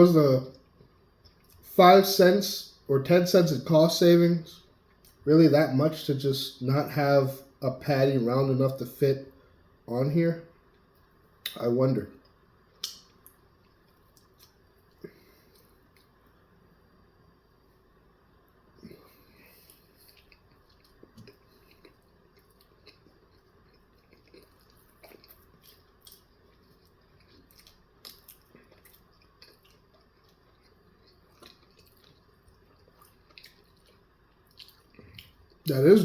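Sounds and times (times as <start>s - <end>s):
wet mouth clicks and smacks: 12.8s - 13.4s
person chewing food: 18.8s - 35.7s.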